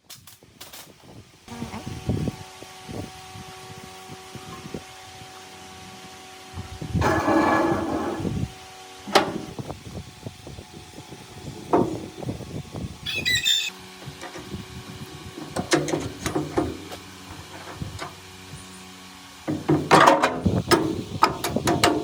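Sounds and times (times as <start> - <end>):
short high squeak: 13.0 - 13.8.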